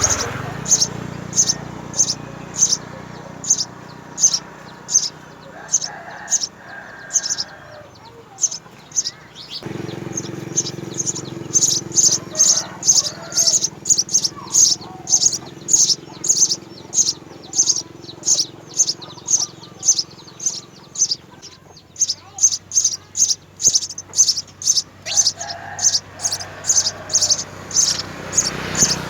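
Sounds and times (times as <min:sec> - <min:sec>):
sparrow chirping: 0:00.0 - 0:29.0
steady low hum: 0:08.4 - 0:29.0.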